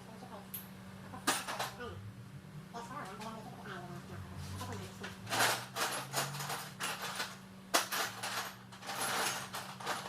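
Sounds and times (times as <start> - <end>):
steady low hum: 0.0 - 10.0
metal tools clinking and scraping: 5.3 - 10.0.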